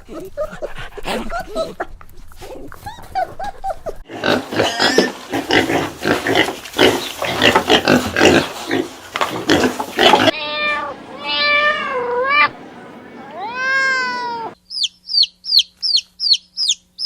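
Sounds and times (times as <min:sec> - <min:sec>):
pigs grunting and squealing: 0:04.0 - 0:12.6.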